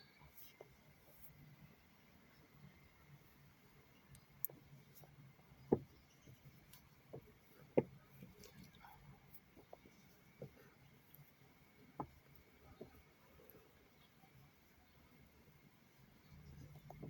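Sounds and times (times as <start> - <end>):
soft bumps and rustles: 4.4 - 13.6, 16.0 - 17.0.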